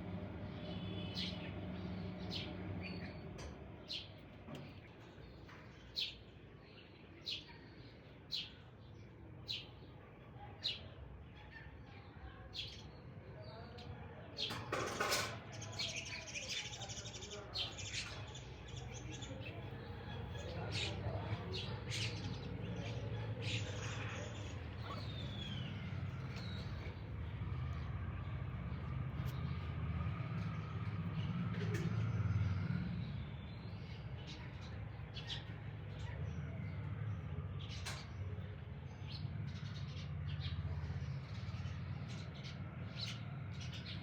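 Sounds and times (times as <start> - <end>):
birds calling: 0.0 - 7.4, 14.4 - 44.0
bird chirping: 16.7 - 27.2.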